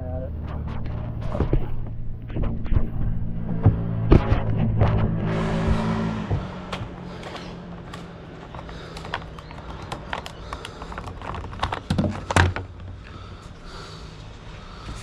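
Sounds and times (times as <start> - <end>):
parts clattering: 5.8 - 13.3
plastic and metal parts clicking: 7.2 - 12.9.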